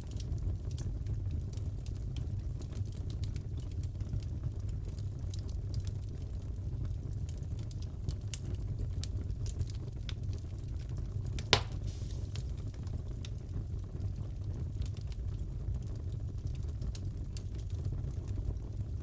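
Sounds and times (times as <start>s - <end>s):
wood fire crackling: 0.0s - 19.0s
loud pop: 11.4s - 12.5s.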